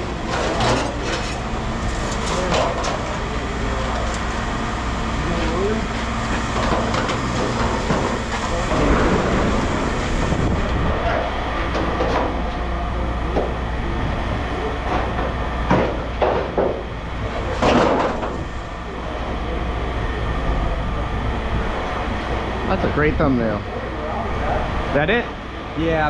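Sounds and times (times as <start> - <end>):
scrap metal clanking and rattling: 0.0 - 3.3, 6.3 - 12.6, 14.8 - 18.6
low machinery rumble: 0.0 - 26.0.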